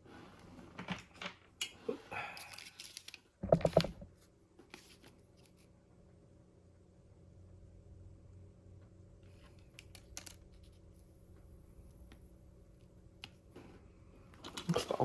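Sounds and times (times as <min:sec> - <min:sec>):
faint steady hum: 0:00.1 - 0:15.0
small tools rustling and clicking: 0:02.4 - 0:04.1, 0:09.3 - 0:11.1
brief rattle: 0:03.4 - 0:04.0.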